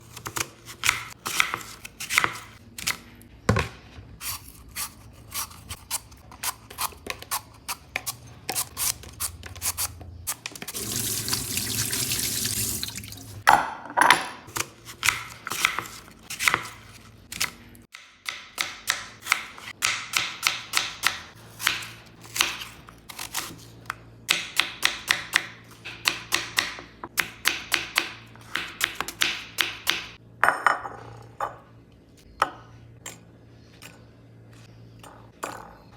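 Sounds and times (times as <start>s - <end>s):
water running from a tap: 10.7s - 13.4s.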